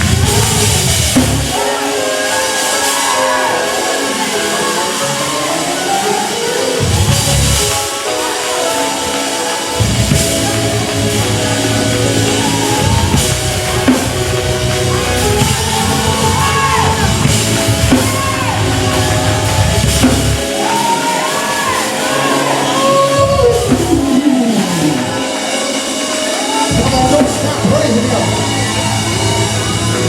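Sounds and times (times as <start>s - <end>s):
bass line: 0.0s - 1.6s, 6.8s - 7.8s, 9.8s - 20.7s, 22.6s - 25.3s
drum kit: 0.0s - 30.0s
held keyboard chords: 0.0s - 30.0s.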